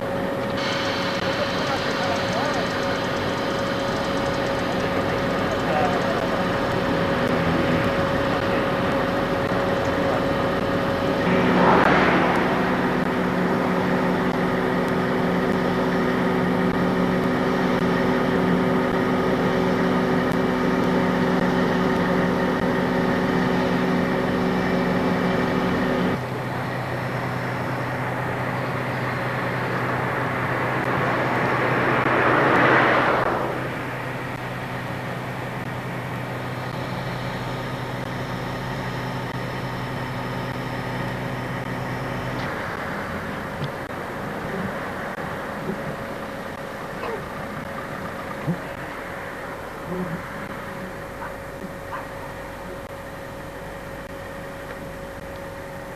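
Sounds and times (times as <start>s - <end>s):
diesel locomotive engine droning: 0.0s - 55.9s
hissing noise: 0.5s - 3.0s, 11.0s - 15.6s.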